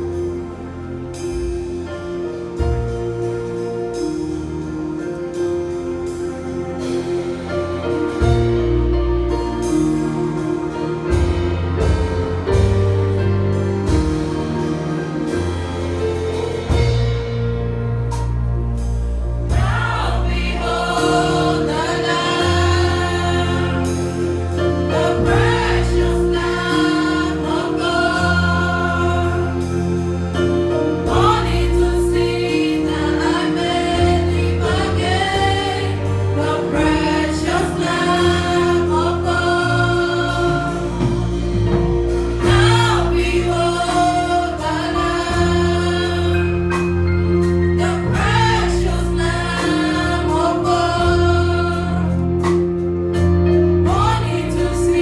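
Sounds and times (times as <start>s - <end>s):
bass line: 0.0s - 55.0s
choir singing gospel song: 0.0s - 55.0s
keyboard chords: 0.0s - 55.0s.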